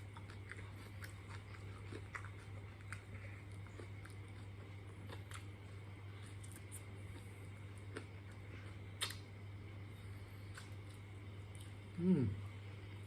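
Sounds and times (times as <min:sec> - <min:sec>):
faint chewing of food: 0:00.0 - 0:12.0
steady low hum: 0:00.0 - 0:13.0.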